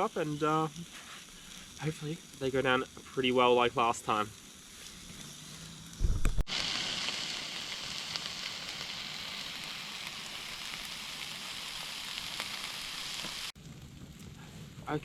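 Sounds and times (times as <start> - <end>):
steaks sizzling: 0.0 - 13.6.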